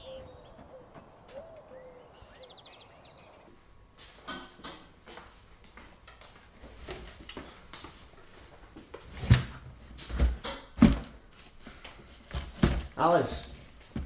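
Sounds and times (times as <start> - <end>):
cardboard boxes knocking and rustling: 9.0 - 11.2, 12.2 - 13.0
heavy thumps of boxes: 9.2 - 11.1, 12.3 - 13.0.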